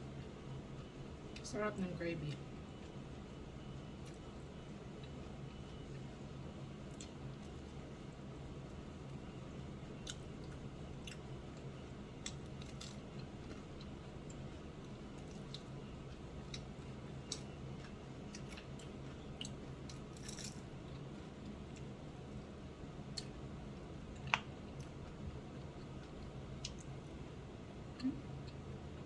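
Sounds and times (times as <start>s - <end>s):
person chewing food: 10.0s - 22.0s, 24.1s - 27.0s, 27.8s - 29.0s.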